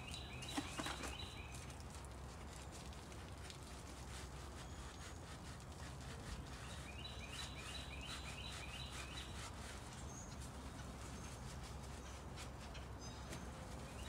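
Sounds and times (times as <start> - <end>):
bird chirping: 0.0 - 1.6, 6.6 - 10.4
sponge scrubbing metal: 3.7 - 12.8.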